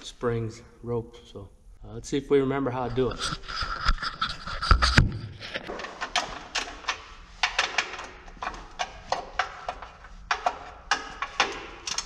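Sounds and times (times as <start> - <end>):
clicks and rattles of pull starter: 5.7 - 12.0.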